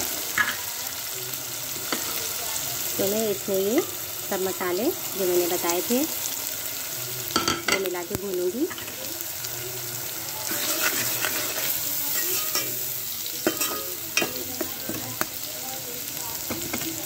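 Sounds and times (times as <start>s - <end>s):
onions and spices sizzling in oil: 0.0s - 17.0s
metal spoon scraping pot: 10.5s - 12.8s
spoon clinking against pot: 12.2s - 12.8s, 13.4s - 15.3s.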